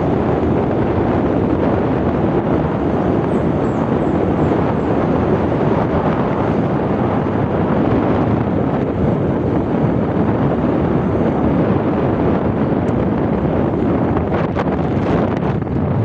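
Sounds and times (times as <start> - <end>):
road noise: 0.0 - 16.0
wind rush over microphone: 0.0 - 16.0.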